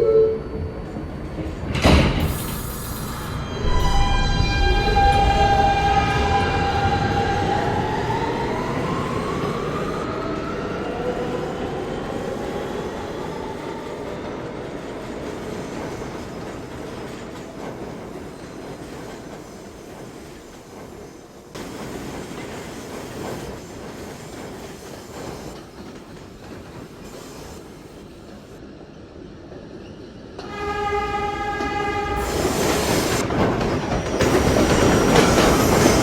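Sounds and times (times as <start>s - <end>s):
traction motors whining: 0.7s - 11.1s
train wheels rumbling on rails: 0.7s - 36.0s.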